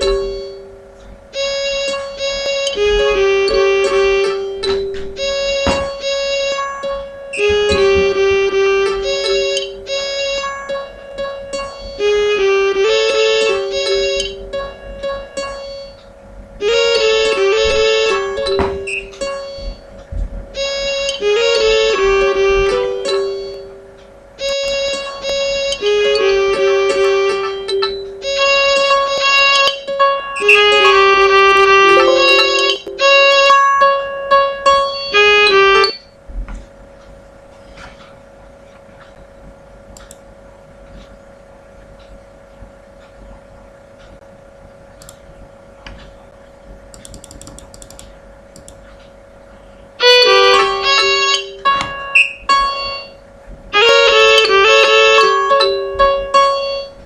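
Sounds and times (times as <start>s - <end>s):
synthesized piano-like notes: 0.0s - 36.2s, 50.0s - 57.0s
faint steady hum: 0.0s - 57.0s.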